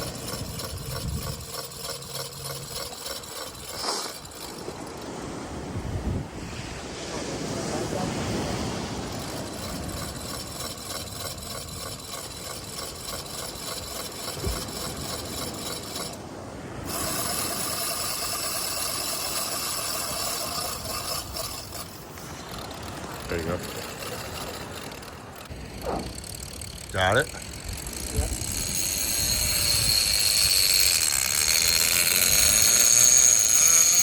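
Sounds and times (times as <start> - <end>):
fishing reel drag screaming: 0.0 - 5.6, 8.2 - 16.2, 16.8 - 34.0.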